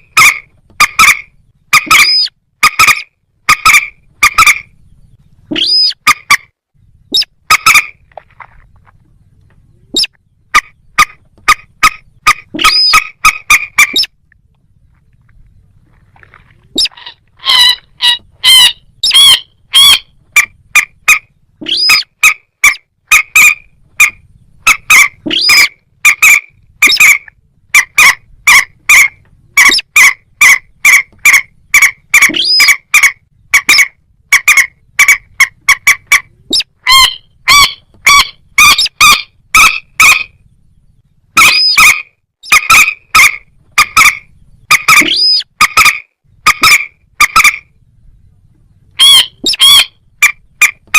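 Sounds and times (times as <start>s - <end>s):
rail bird calling: 0.0s - 50.9s.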